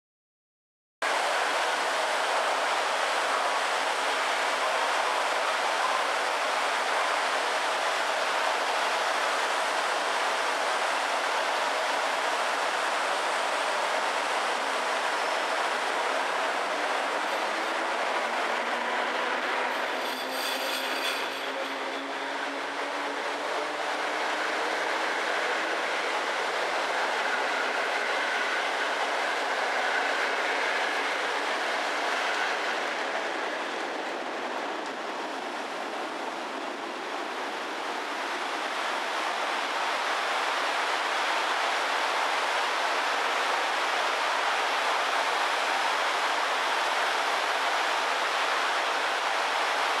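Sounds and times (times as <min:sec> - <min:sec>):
train wheels on rails: 0:01.1 - 0:50.0
faint thin wheel squeal: 0:19.7 - 0:21.9.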